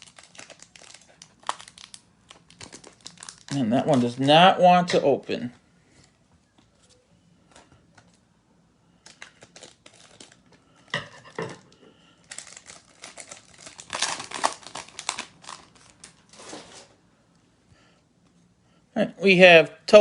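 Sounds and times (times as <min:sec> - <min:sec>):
wrapper being torn and crinkled: 0:00.0 - 0:05.1, 0:09.0 - 0:10.7, 0:12.2 - 0:16.8.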